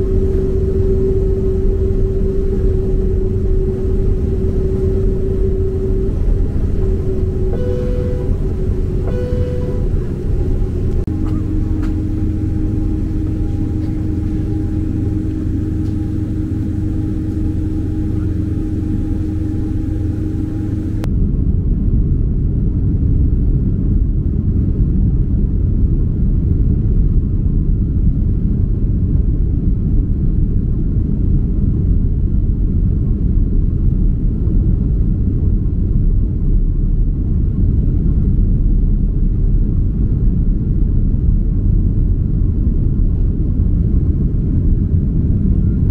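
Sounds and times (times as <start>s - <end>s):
airliner engine hum: 0.0s - 21.1s
held tones: 0.0s - 21.1s
deep engine rumble: 0.0s - 45.9s.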